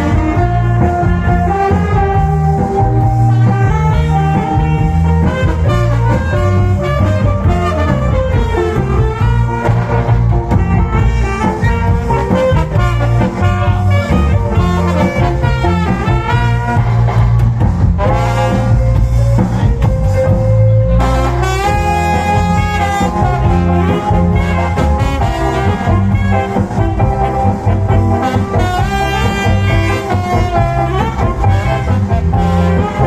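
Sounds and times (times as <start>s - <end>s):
cha-cha dance music with brass: 0.0s - 33.0s.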